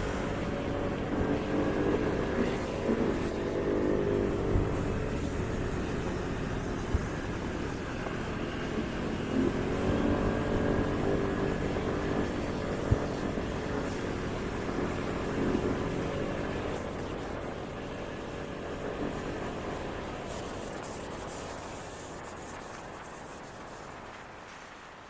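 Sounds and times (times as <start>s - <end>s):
wind and road noise: 0.0s - 25.0s.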